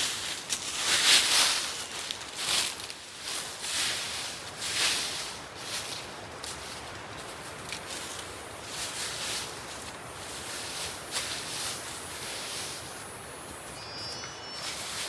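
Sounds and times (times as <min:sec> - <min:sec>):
rustling in leaves: 0:00.0 - 0:15.0
steady background hiss: 0:00.0 - 0:15.0
faint high notes: 0:13.7 - 0:15.0.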